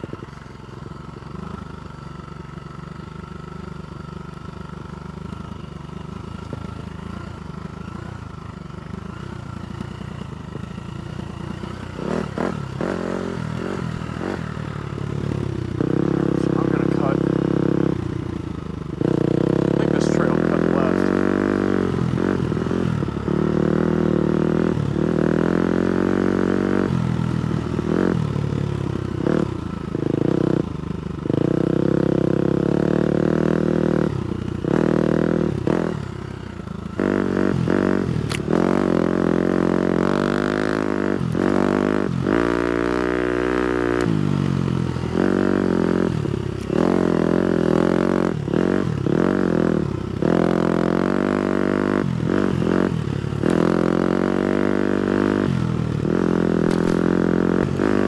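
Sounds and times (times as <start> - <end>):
motocross bike engine revving: 11.4 - 28.4, 31.2 - 36.0, 36.9 - 58.0.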